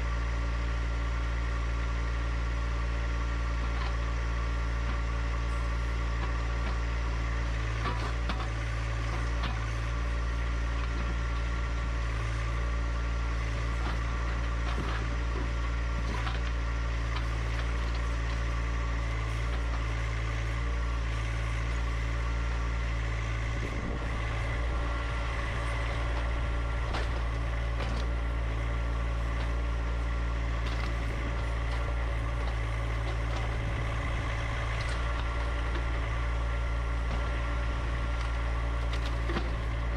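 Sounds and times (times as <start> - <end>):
tractor diesel engine running: 0.0 - 39.9
short knocks and scrapes: 13.7 - 18.5, 23.6 - 29.7, 38.1 - 39.9.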